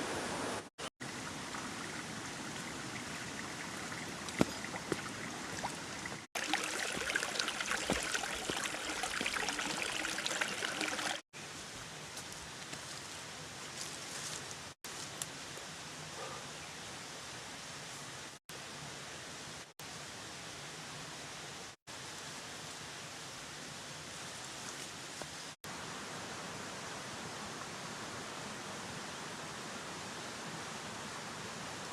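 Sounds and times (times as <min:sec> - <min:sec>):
rain falling: 0:02.2 - 0:11.2.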